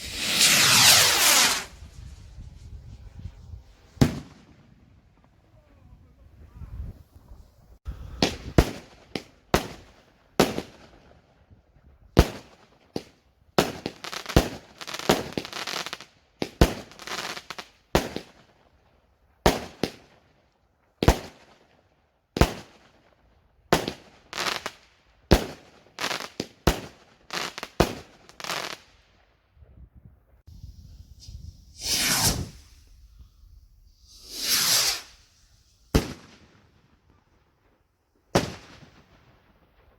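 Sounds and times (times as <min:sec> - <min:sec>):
fireworks bangs: 0:00.0 - 0:05.3, 0:30.8 - 0:33.1, 0:34.1 - 0:37.2, 0:38.3 - 0:39.9
fireworks crackling: 0:00.0 - 0:05.3, 0:30.5 - 0:37.2.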